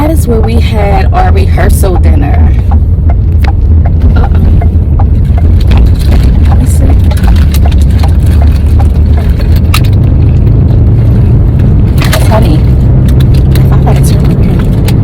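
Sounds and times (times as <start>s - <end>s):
car cabin rumble: 0.0s - 15.0s.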